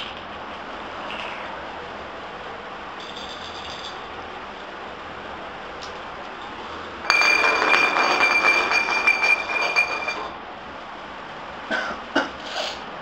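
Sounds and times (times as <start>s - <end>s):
bell ringing rattle: 3.0s - 4.0s, 7.1s - 10.3s.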